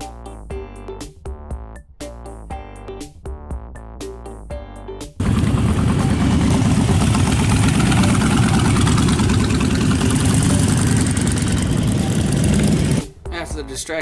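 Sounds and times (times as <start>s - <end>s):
motorcycle engine rumbling: 5.2s - 13.1s.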